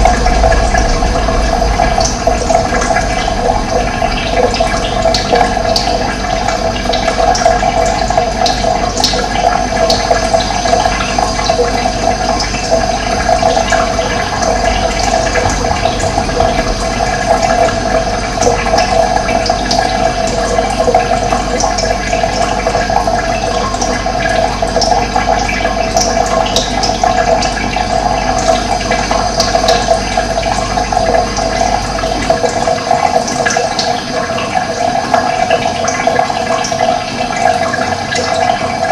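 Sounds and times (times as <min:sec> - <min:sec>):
low rumble: 0:00.0 - 0:24.4
running water: 0:00.0 - 0:38.9.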